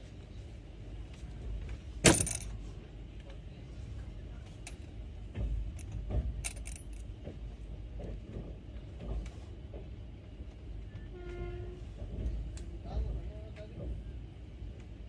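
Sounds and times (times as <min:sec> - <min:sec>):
low steady rumble: 0:00.0 - 0:15.0
light clicks and taps: 0:13.4 - 0:14.0.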